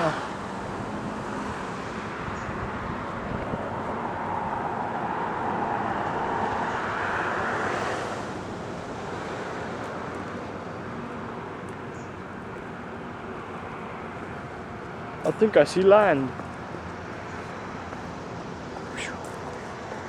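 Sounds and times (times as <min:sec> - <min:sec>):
vehicle passing: 0:00.0 - 0:09.8, 0:16.1 - 0:20.0
road traffic: 0:00.0 - 0:20.0.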